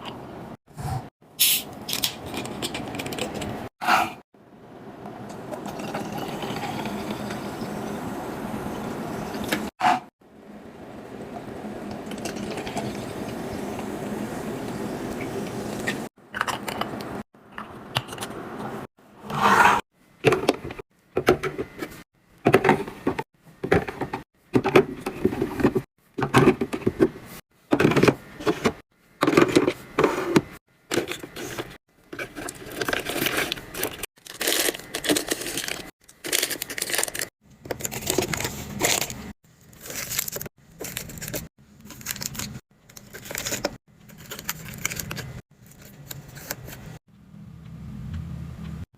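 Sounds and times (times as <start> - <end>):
packaging crinkling: 32.2 - 46.8.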